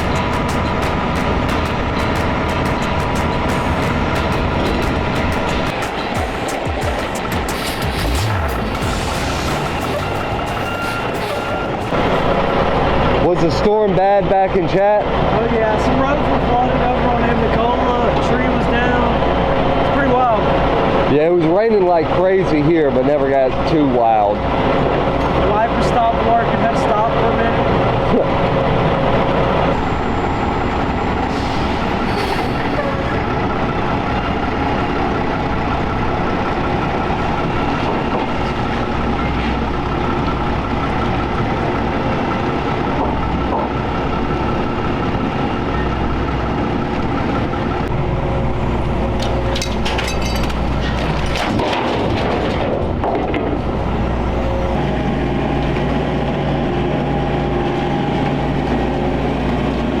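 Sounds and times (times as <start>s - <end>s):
heavy vehicle engine running: 0.0s - 60.0s
clicks and rattles: 49.2s - 53.6s.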